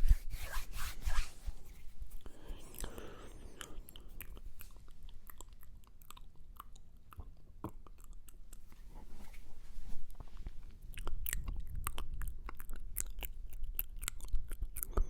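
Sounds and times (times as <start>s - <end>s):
wet mouth clicks and smacks: 2.2s - 8.8s, 10.9s - 15.0s.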